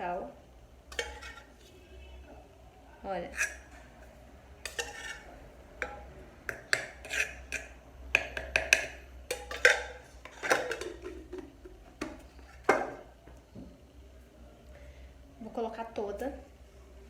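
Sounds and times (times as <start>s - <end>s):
spoon clinking against bowl: 0.9s - 1.5s, 4.6s - 11.0s.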